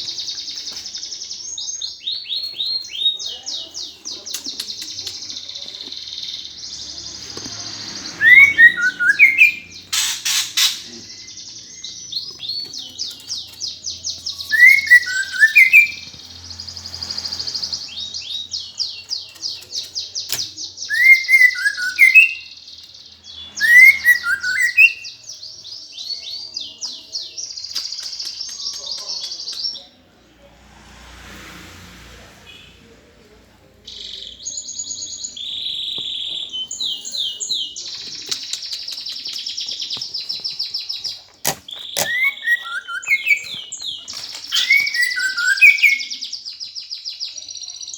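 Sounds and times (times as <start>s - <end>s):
sparrows chattering: 0.0s - 30.2s, 32.5s - 47.9s
loud squeaky chirps: 4.4s - 25.2s, 33.9s - 46.4s.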